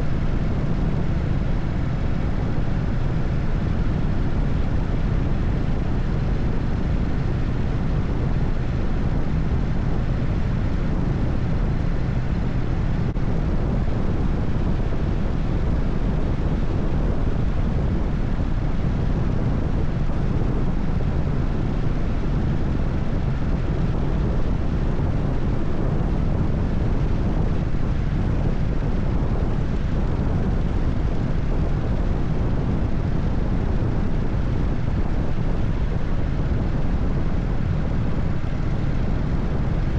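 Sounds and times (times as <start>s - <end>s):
wind noise: 0.0s - 39.9s.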